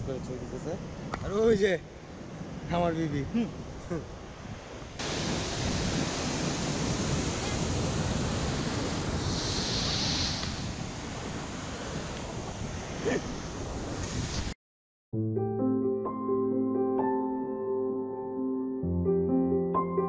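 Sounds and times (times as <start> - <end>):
falling water rushing: 5.0 - 13.5.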